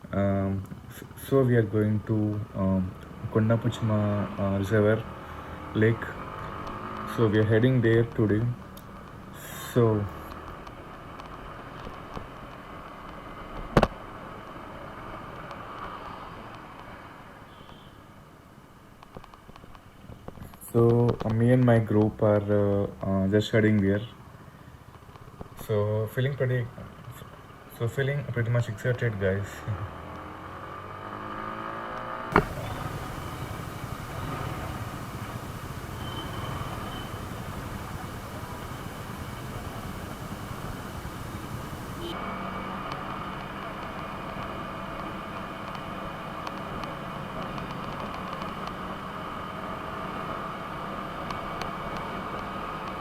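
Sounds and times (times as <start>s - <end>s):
motorcycle engine: 30.4s - 42.2s
wind noise: 32.3s - 42.2s.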